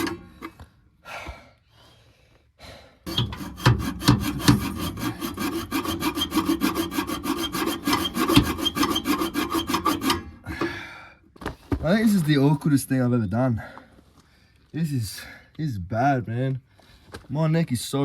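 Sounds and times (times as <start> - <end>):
hacksaw cutting metal pipe: 0.0 - 0.5, 3.1 - 10.8.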